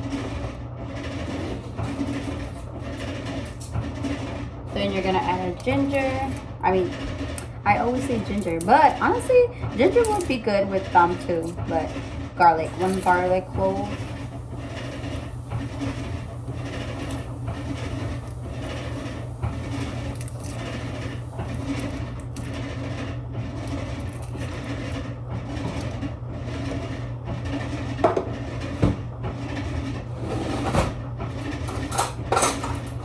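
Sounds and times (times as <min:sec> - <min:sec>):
constant low hum: 0:01.4 - 0:22.9.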